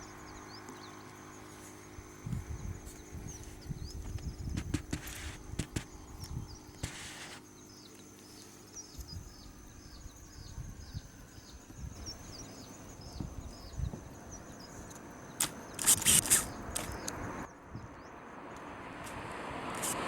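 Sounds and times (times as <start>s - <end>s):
low wind rumble: 0.0s - 7.8s, 8.8s - 20.0s
high thin whine: 1.4s - 7.6s, 15.4s - 17.1s
rustling hisses: 4.6s - 6.0s, 6.7s - 7.5s, 15.4s - 17.0s.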